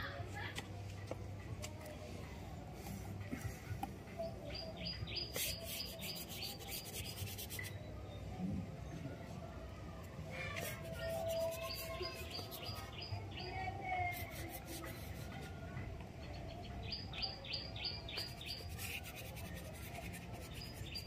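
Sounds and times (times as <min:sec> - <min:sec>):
birds chirping: 0:04.1 - 0:08.3
paintbrush scratching on paper: 0:05.3 - 0:07.7, 0:10.6 - 0:13.1, 0:14.1 - 0:15.5, 0:18.2 - 0:21.0.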